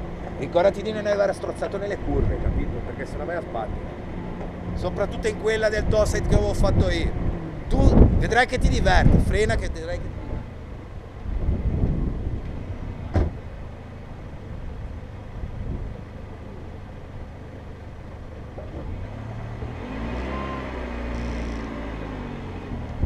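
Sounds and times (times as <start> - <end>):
car engine idling: 0.0 - 19.8.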